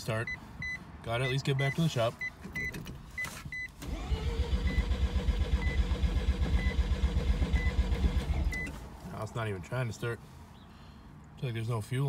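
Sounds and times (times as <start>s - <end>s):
engine cranking on starter: 3.8s - 8.6s.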